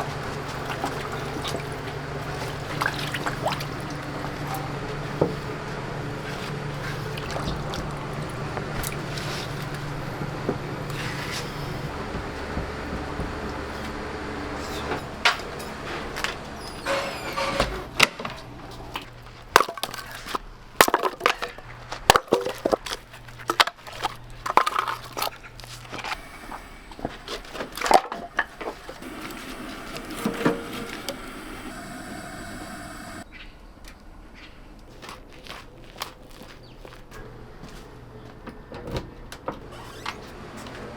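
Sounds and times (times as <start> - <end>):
objects knocking and clattering: 7.1 - 16.4.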